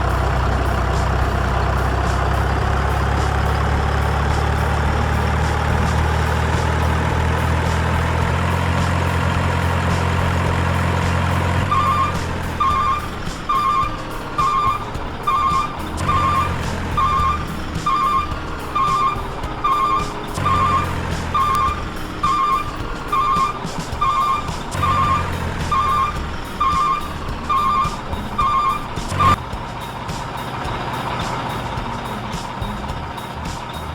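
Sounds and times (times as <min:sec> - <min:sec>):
truck engine running: 0:00.0 - 0:33.9
reversing alarm beeping: 0:09.3 - 0:29.4.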